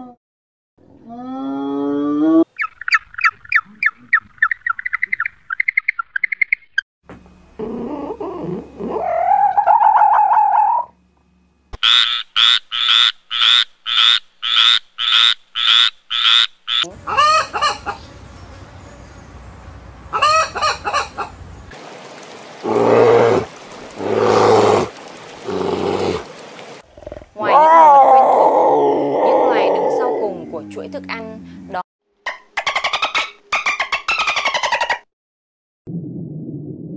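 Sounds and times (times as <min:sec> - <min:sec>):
animal calls: 0:07.6 - 0:11.0, 0:22.6 - 0:30.5.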